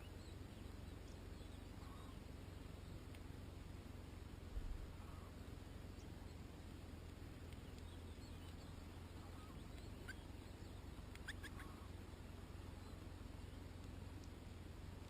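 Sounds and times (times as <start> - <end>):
goldfinch chirps: 0.0 - 3.1, 7.4 - 13.6
low steady rumble: 0.0 - 15.0.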